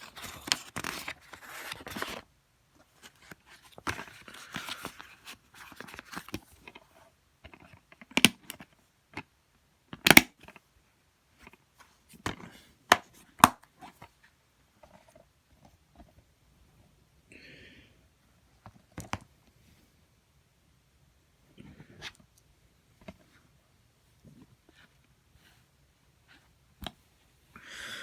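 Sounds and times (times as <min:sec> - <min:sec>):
plastic cases rustling and scraping: 0:00.0 - 0:08.8.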